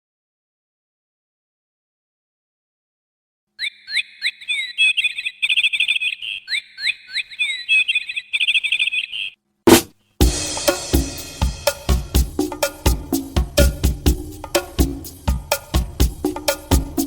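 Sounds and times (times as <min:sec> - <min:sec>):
bird whistled song with trill: 0:03.6 - 0:09.4
band playing with drums: 0:09.7 - 0:17.0.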